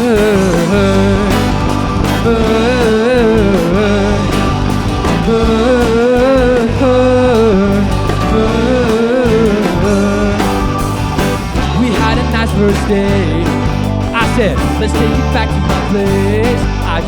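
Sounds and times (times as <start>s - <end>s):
live rock band playing: 0.0s - 17.0s
wavering sliding lead melody: 0.0s - 17.0s.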